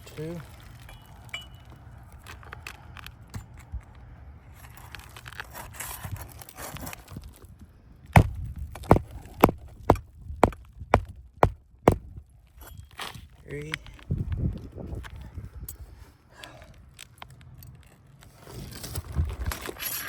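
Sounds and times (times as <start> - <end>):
soft rustling and scraping: 0.0 - 7.8, 12.4 - 20.0
hammer blows on roofing nail: 8.2 - 12.1.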